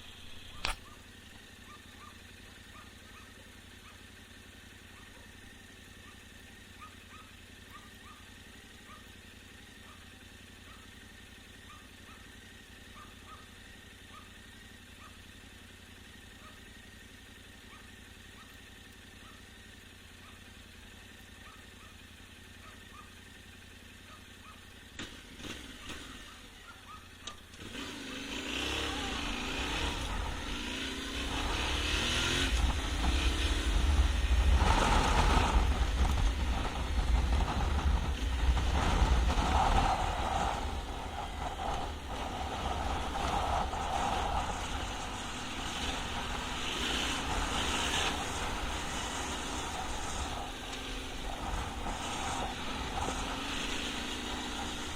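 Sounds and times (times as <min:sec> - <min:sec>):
motorcycle engine starting and running: 0:00.0 - 0:54.9
sharp clicks: 0:00.4 - 0:00.9.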